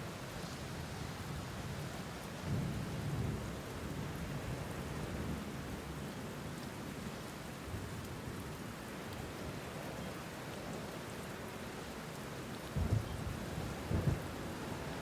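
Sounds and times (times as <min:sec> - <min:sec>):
steady rain falling: 0:00.0 - 0:15.0
low thunder rumble: 0:12.8 - 0:14.3.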